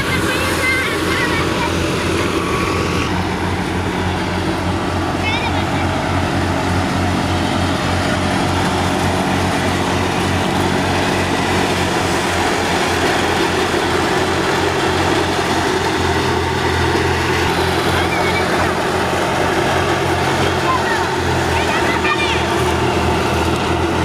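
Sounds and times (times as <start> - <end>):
tractor diesel engine running: 0.0 - 24.0
wheat thresher noise: 0.0 - 24.0.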